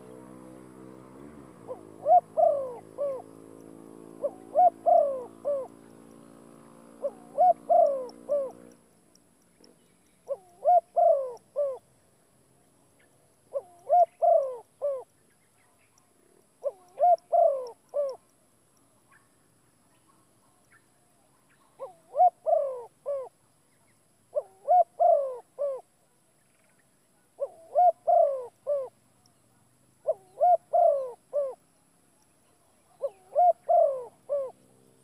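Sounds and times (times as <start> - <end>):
bird hooting call: 1.6 - 3.4, 4.2 - 6.1, 6.9 - 8.8, 10.2 - 11.9, 13.5 - 15.2, 16.6 - 18.3, 21.5 - 23.4, 24.3 - 26.8, 27.4 - 29.0, 30.0 - 31.6, 32.8 - 34.7.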